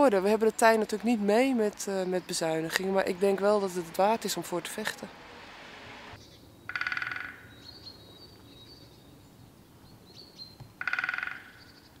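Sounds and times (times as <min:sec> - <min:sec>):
background hiss: 0:00.2 - 0:06.7.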